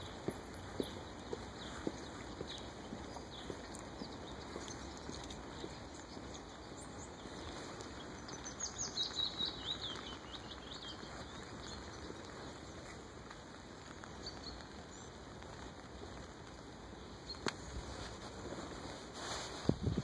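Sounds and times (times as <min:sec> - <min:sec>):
songbird twittering: 0:00.0 - 0:12.8
outdoor background noise: 0:00.0 - 0:20.0.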